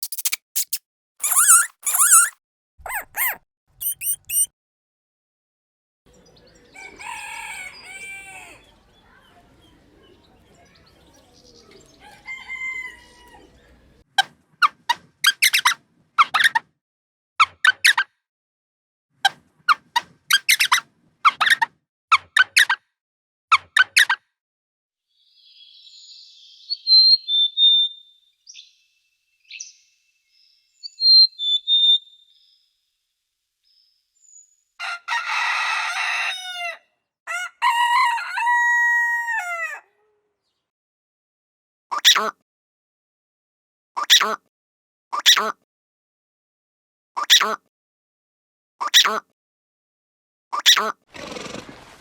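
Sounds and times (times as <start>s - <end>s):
bird chirping: 0.0s - 4.5s, 25.3s - 32.7s
rapid high squeaks: 0.0s - 4.5s
rooster crowing: 6.7s - 8.8s, 12.0s - 13.6s, 34.8s - 40.0s.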